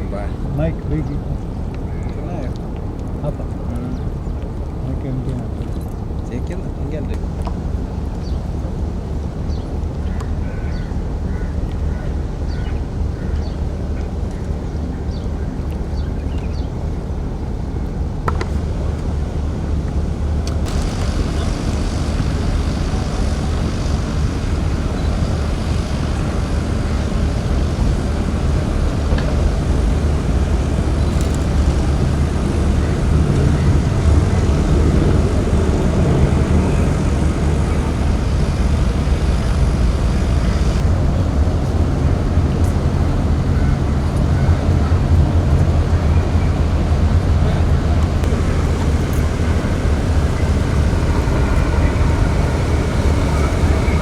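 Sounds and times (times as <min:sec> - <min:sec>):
engine droning: 0:20.5 - 0:41.0, 0:48.0 - 0:54.0.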